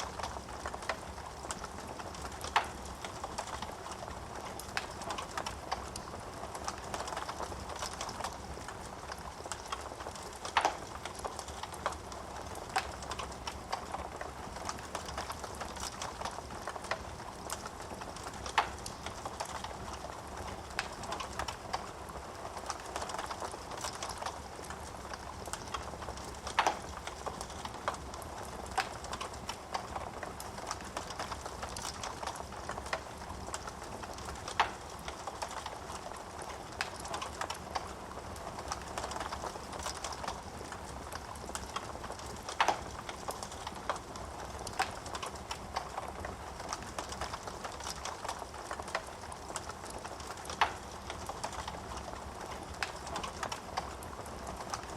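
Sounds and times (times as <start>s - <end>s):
wood crackling: 0.0s - 54.9s
sharp pops from fire: 25.2s - 30.0s, 30.7s - 35.8s, 47.0s - 51.7s.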